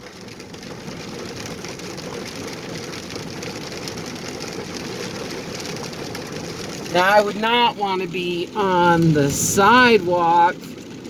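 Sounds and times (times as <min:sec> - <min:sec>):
truck engine hum: 0:00.1 - 0:11.0
tyres hissing on wet road: 0:04.8 - 0:10.8.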